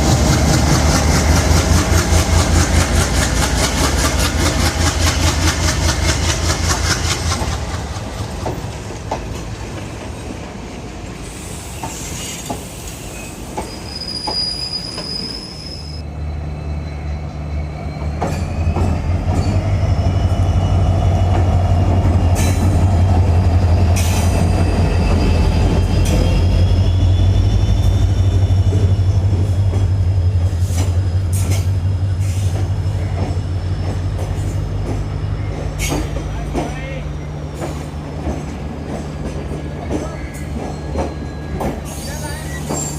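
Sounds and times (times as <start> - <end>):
train wheels clattering: 0.0 - 10.5, 28.6 - 42.9
wheel squeal: 11.8 - 21.4, 23.6 - 29.8, 39.8 - 42.9.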